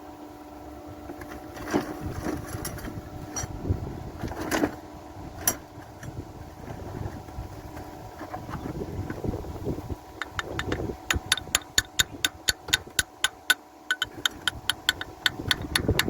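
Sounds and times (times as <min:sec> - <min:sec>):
steady hum: 0:00.0 - 0:16.0
metal clinks and knocks: 0:13.9 - 0:16.0.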